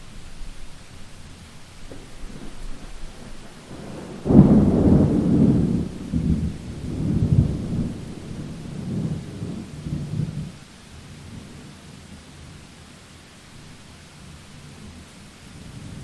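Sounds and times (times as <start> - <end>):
steady rain: 0.0 - 16.0
thunder crack and rumble: 1.8 - 10.6.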